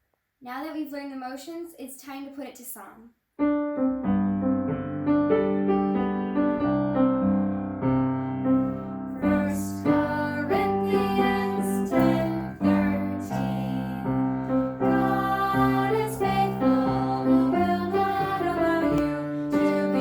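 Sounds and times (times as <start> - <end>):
piano playing: 3.4 - 20.0
voices singing: 9.2 - 20.0.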